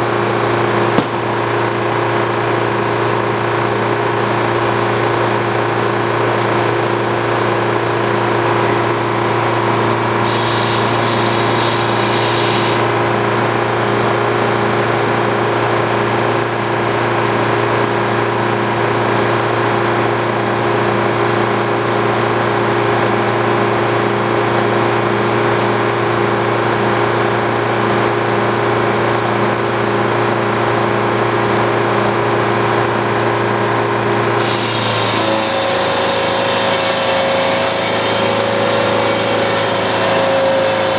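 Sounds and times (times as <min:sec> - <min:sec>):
sawmill engine running: 0:00.0 - 0:02.9, 0:08.6 - 0:14.1, 0:34.0 - 0:40.9
high hiss: 0:10.2 - 0:12.9.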